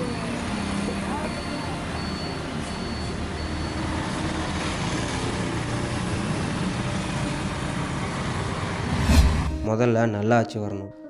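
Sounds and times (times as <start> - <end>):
low rumbling noise: 8.8 - 9.8.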